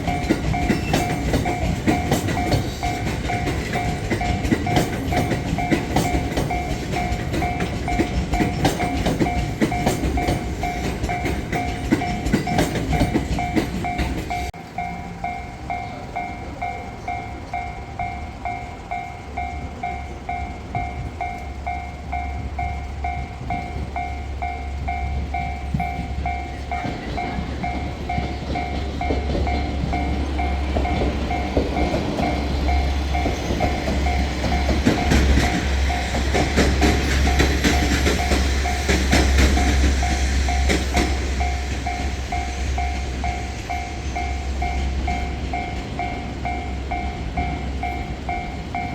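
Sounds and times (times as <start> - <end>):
low train hum: 0.0 - 48.9
train wheels clicking on rails: 0.0 - 48.9
level crossing bell ringing: 39.6 - 48.9.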